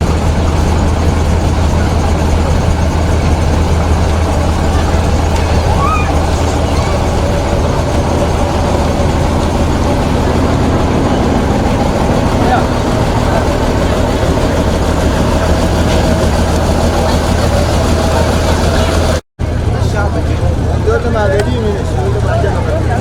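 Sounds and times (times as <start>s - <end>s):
heavy truck engine running: 0.0s - 23.0s.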